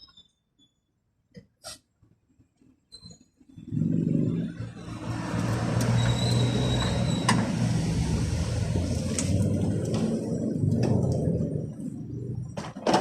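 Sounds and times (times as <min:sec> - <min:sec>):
vehicle engine starting and running: 0:03.6 - 0:13.0.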